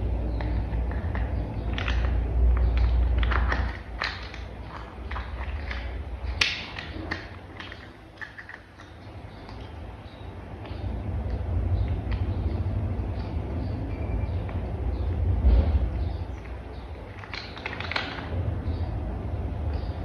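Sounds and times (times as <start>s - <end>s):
plastic toy parts clicking: 0.4s - 9.7s.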